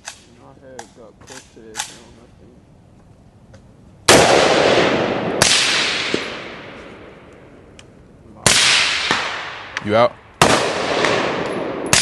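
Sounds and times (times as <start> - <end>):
gunshots echoing: 4.1 - 7.3, 8.4 - 12.0.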